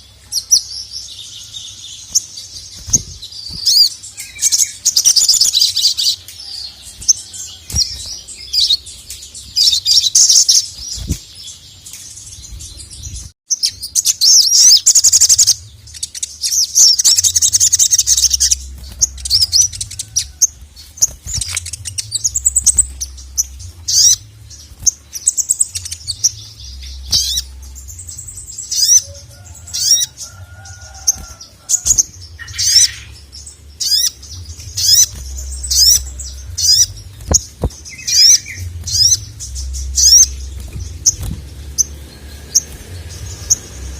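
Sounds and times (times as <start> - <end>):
bird chattering trills: 33.8 - 43.9.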